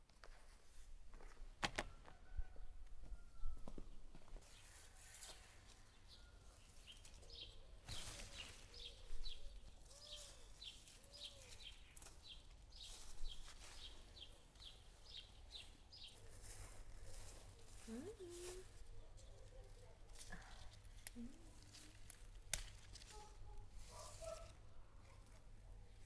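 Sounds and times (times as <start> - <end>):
songbirds chirping: 2.2 - 22.4.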